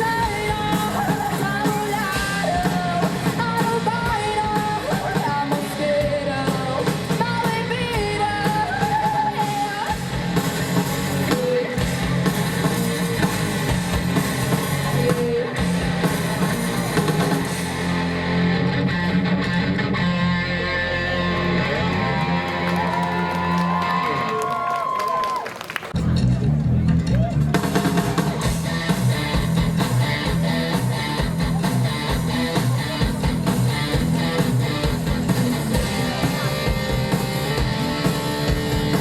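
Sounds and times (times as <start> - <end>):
person singing: 0.0 - 10.0, 14.9 - 15.7
live rock band playing: 0.0 - 23.8, 26.0 - 39.0.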